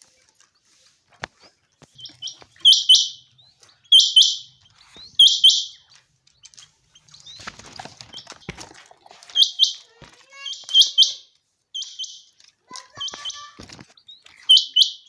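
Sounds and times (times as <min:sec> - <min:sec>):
faint rustle with knocks: 0:00.0 - 0:02.6, 0:05.9 - 0:10.4, 0:12.4 - 0:14.4
quail calling: 0:01.8 - 0:06.0, 0:09.3 - 0:15.0.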